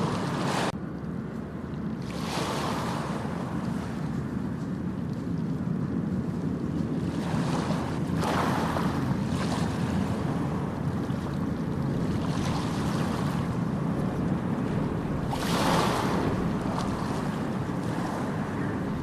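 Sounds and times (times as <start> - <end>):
ocean surf breaking: 0.0 - 0.8, 7.0 - 19.0.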